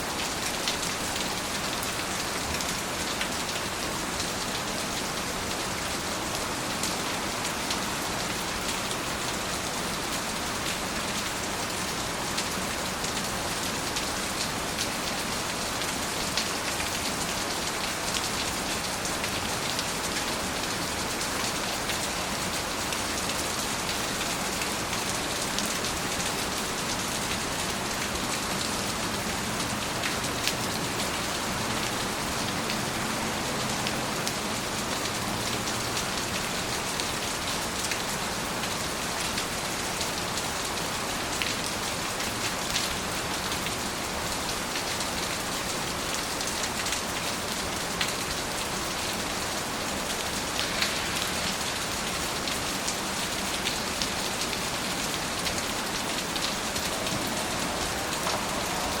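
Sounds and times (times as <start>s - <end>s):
steady rain hiss: 0.0s - 59.0s
raindrops striking surface: 50.2s - 59.0s.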